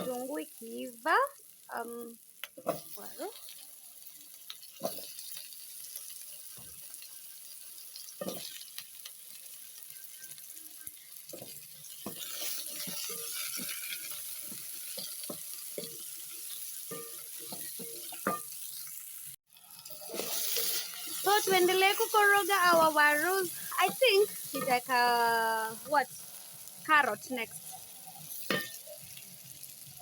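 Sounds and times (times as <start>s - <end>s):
potatoes sizzling in a pan: 0.0s - 30.0s
spoon knocking and scraping pan: 4.8s - 5.4s, 8.1s - 8.7s, 11.3s - 18.7s, 20.1s - 24.9s, 28.2s - 29.1s.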